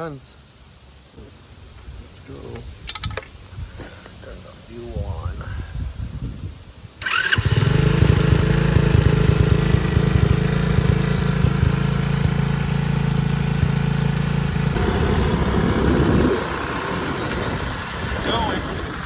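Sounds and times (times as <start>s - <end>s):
small motorbike engine running: 7.0s - 19.0s.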